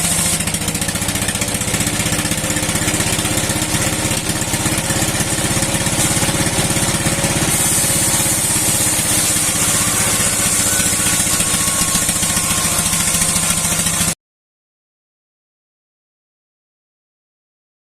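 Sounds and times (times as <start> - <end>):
stationary engine running: 0.0 - 14.2
high hiss: 7.5 - 10.9.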